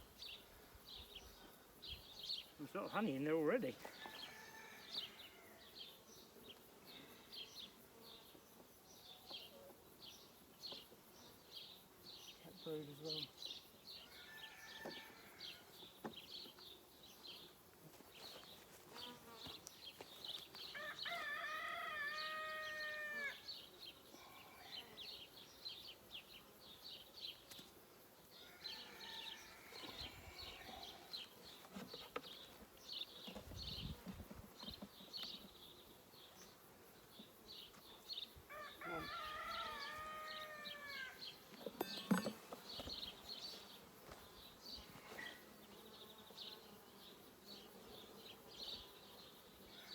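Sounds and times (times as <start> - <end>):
rooster crowing: 3.9 - 5.6, 14.0 - 15.7, 20.7 - 23.5, 28.4 - 30.7, 38.5 - 41.2
honeybees buzzing: 14.6 - 49.8
small birds chirping: 29.4 - 49.9.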